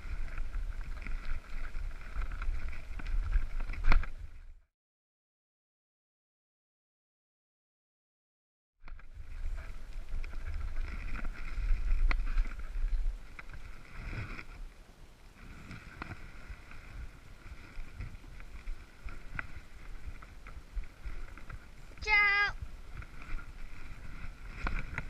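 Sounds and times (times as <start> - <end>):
wind buffeting microphone: 8.9 - 25.0.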